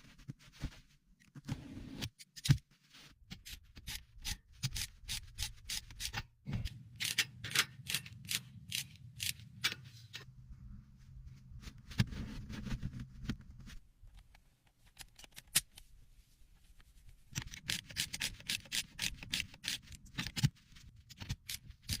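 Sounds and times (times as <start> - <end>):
low steady hum: 6.5 - 14.7.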